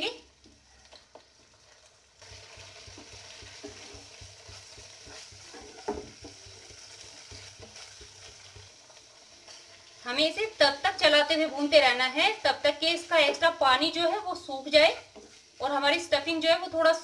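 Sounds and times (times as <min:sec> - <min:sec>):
food sizzling in pan: 0:00.0 - 0:17.0
spatula scraping frying pan: 0:01.6 - 0:10.0, 0:14.6 - 0:15.6.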